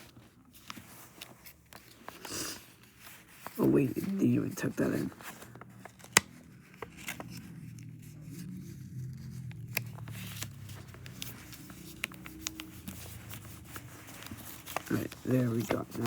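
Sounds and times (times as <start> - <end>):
paper crinkling and folding: 0.0 - 16.0
faint low hum: 3.3 - 16.0.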